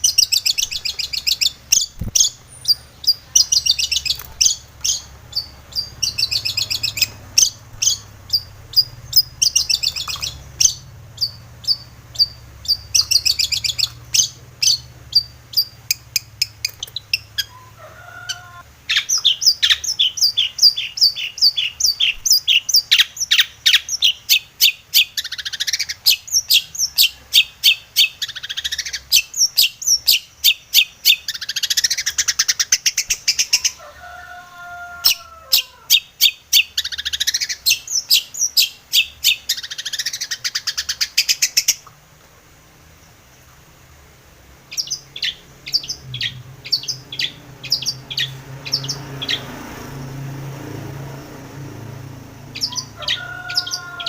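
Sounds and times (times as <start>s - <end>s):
bird chattering song: 0.0s - 33.8s, 35.0s - 41.9s, 44.6s - 49.6s, 52.5s - 54.0s
lower warbling bird call: 0.0s - 34.0s, 44.7s - 50.2s, 52.5s - 54.0s.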